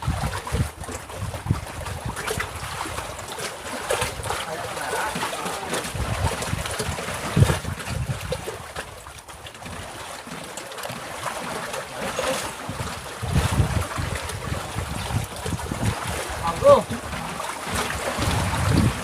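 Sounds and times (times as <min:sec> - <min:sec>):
wind buffeting microphone: 0:00.0 - 0:04.4, 0:05.8 - 0:09.1, 0:12.5 - 0:19.0
water slapping against raft: 0:00.0 - 0:19.0.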